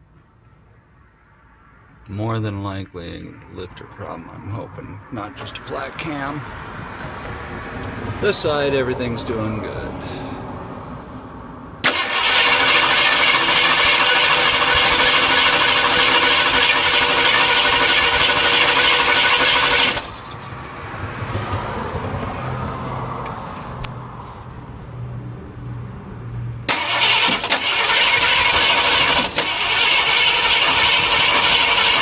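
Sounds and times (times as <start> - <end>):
engine rough idle: 11.8 - 20.4, 26.7 - 32.0
loud steady whirring: 11.8 - 20.4, 26.7 - 32.0.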